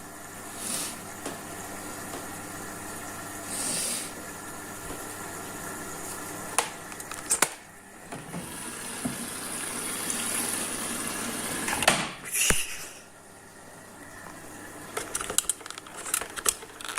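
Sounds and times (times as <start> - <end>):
washing machine water sloshing: 7.7 - 12.2
washing machine knocks: 8.1 - 9.4, 11.8 - 12.2.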